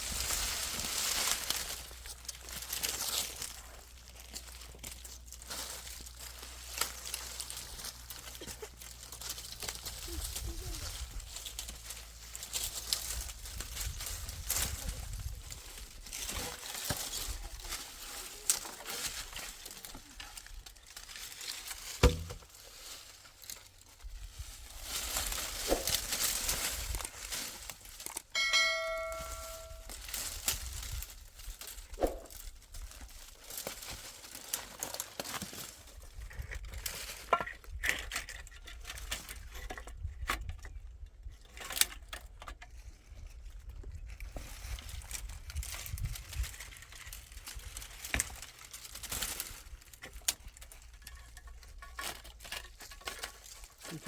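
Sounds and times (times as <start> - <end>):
short metallic ring: 28.4 - 29.9.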